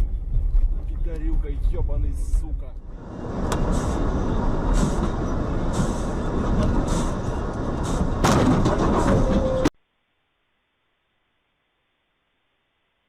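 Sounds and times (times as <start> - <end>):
vehicle road and engine noise: 0.0 - 9.8.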